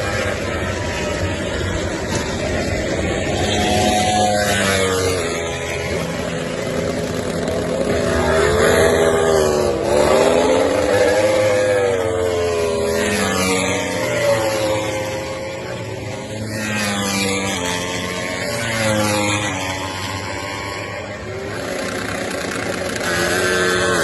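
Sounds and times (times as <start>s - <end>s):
racing motorcycle engines revving: 0.0s - 24.0s.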